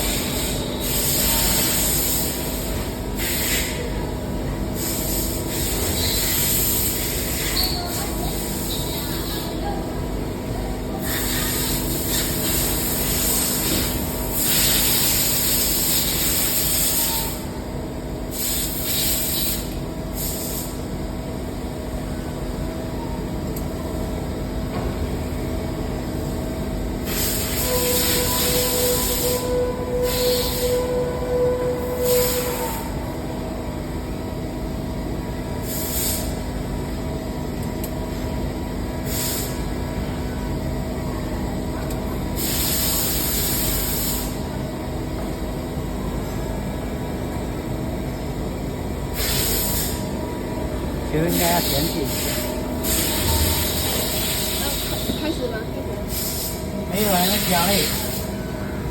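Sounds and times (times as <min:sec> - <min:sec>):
machinery humming: 0:00.0 - 0:35.7, 0:43.2 - 0:58.9.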